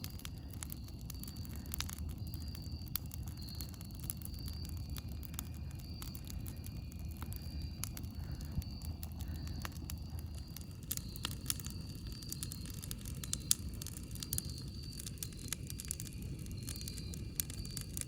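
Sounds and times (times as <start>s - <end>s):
campfire crackling and popping: 0.0s - 18.0s
low fire rumble: 0.0s - 18.0s.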